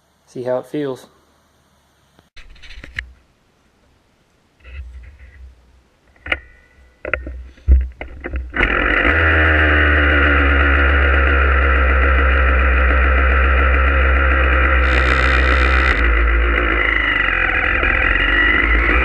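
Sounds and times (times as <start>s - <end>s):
dirt bike engine running: 8.5s - 19.0s.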